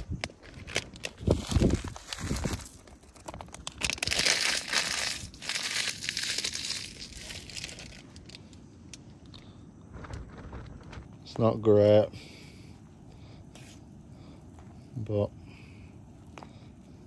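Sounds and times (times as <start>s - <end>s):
plastic packet crinkling: 0.2s - 8.6s.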